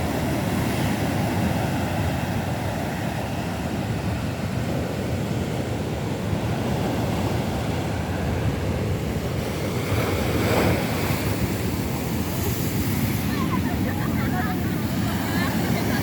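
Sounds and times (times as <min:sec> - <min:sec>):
sea waves washing on beach: 0:00.0 - 0:16.0
wind buffeting microphone: 0:06.0 - 0:16.0.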